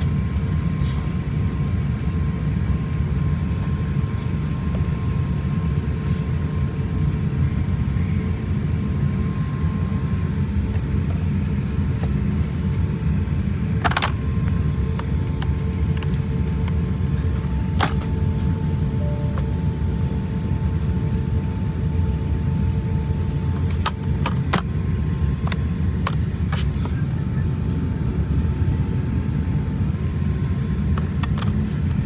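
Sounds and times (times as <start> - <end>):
aircraft cabin rumble: 0.0 - 32.0
faint steady whine: 0.0 - 32.0.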